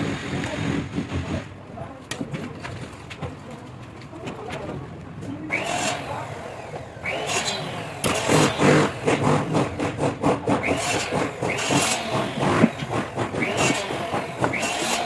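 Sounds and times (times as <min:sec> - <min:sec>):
power drill whine: 0:05.6 - 0:09.5, 0:10.6 - 0:15.0.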